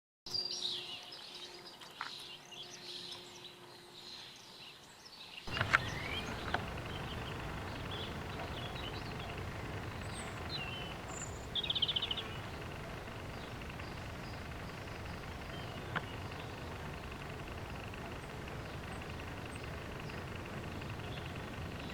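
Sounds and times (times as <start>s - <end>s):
birds chirping and singing: 5.5s - 21.9s
steady rushing noise: 5.5s - 21.9s.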